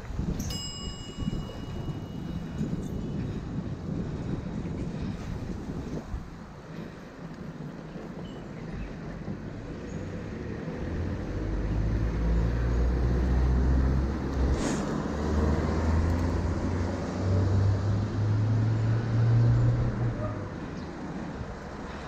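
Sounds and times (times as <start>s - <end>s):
road traffic rumble: 0.0s - 22.0s
brief hiss: 14.5s - 15.0s.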